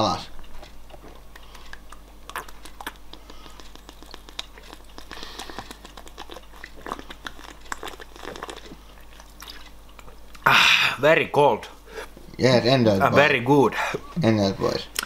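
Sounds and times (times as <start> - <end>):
mouth clicks: 0.4 - 10.6
person gulping a drink: 0.9 - 10.8.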